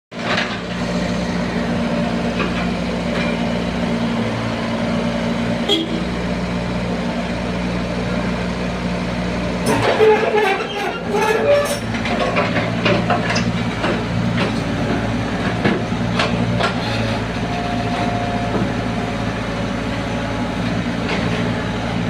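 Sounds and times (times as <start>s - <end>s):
heavy engine running: 0.1s - 22.0s
clatter: 9.7s - 17.0s.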